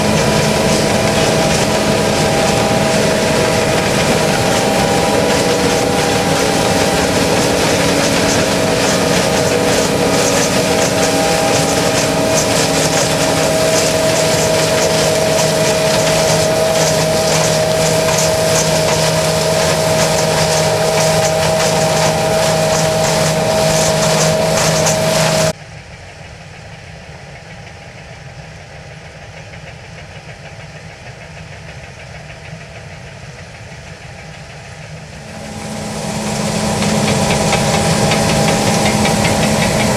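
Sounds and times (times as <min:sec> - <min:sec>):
steady whine: 0:00.0 - 0:25.6, 0:34.9 - 0:39.9
combine harvester engine drone: 0:00.0 - 0:30.4, 0:33.0 - 0:39.9.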